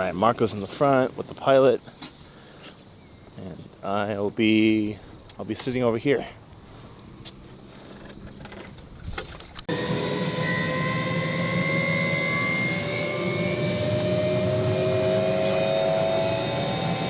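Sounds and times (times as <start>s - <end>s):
helicopter engine and rotor: 9.7s - 17.0s.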